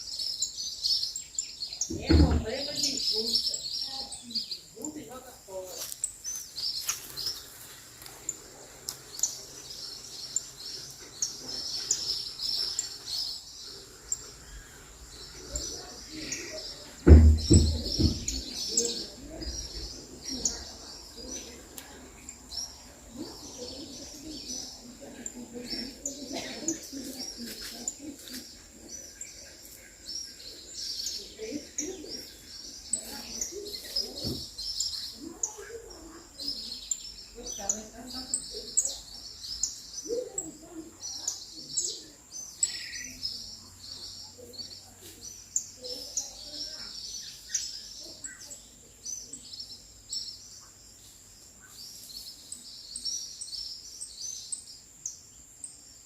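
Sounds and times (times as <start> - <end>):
small birds chirping: 0.0 - 56.0
loud low thump: 1.9 - 2.6, 17.0 - 18.6.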